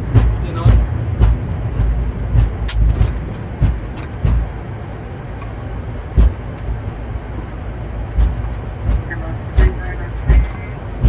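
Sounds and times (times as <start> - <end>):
airliner rolling rumble: 0.0 - 11.0
wheels thumping over bumps: 0.0 - 11.0.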